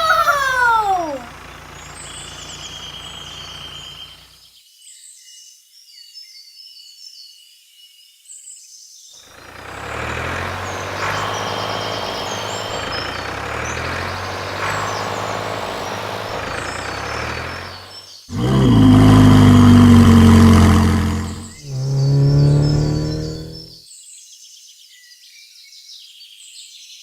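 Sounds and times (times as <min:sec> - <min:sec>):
birds chirping: 0:00.0 - 0:04.2, 0:09.4 - 0:23.8
heavy vehicle engine running: 0:00.0 - 0:04.3, 0:09.3 - 0:23.8.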